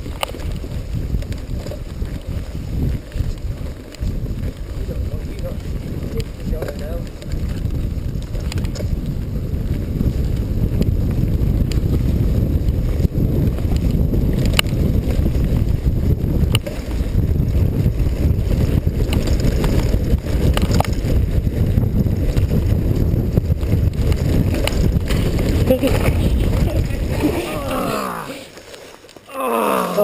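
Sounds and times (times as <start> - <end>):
wind buffeting microphone: 0.0 - 28.6
bike clicking and knocking: 5.8 - 26.8.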